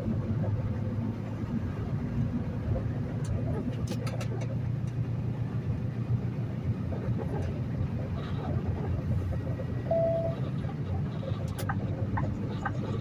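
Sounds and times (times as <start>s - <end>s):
truck engine low rumble: 0.0s - 13.0s
short single-pitched beep: 9.9s - 10.4s.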